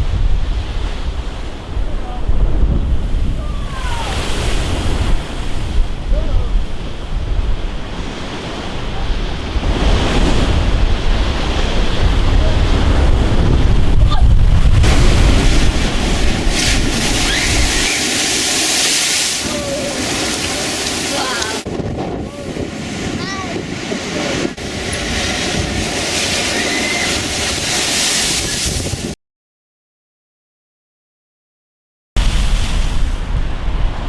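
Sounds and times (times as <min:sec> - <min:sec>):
waves crashing: 0:00.0 - 0:29.2, 0:32.2 - 0:34.0
wind buffeting microphone: 0:00.0 - 0:29.2, 0:32.2 - 0:34.0
loud high hiss: 0:17.2 - 0:21.6.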